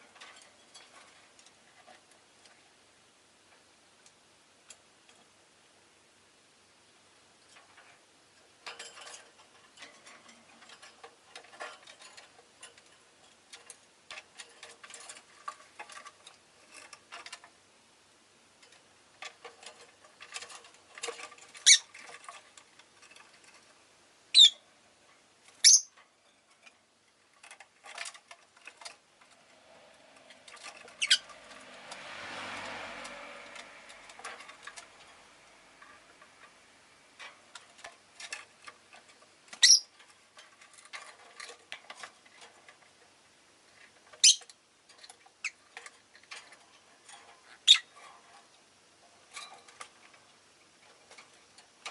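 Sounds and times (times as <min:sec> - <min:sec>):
lovebirds chirping: 0:24.3 - 0:24.6, 0:25.6 - 0:25.9, 0:30.9 - 0:31.3, 0:39.5 - 0:39.9, 0:44.2 - 0:44.5, 0:47.6 - 0:47.9
vehicle passing: 0:29.2 - 0:37.2.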